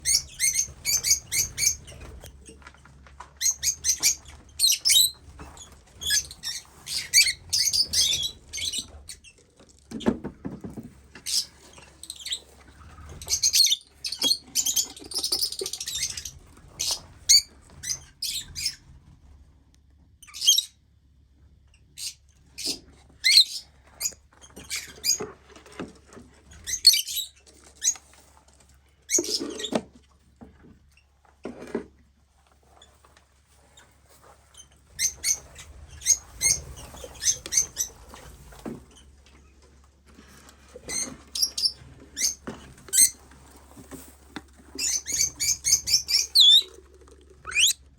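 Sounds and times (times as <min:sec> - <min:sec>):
lovebirds chirping: 0:47.5 - 0:47.8.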